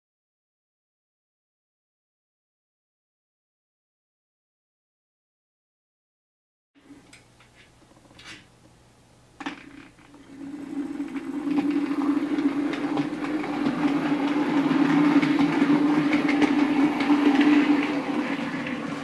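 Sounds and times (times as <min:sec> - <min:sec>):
wheels clicking over rails: 0:09.4 - 0:19.0
model train motor hum: 0:10.1 - 0:19.0.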